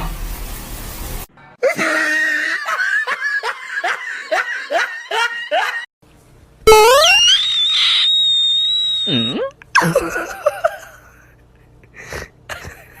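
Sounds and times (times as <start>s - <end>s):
person laughing hard: 1.6s - 5.9s, 9.8s - 11.3s.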